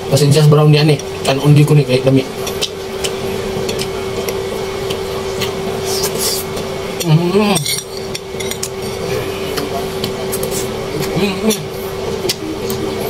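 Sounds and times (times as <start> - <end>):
steady hum: 0.0 - 13.0
person chewing food: 2.4 - 6.6.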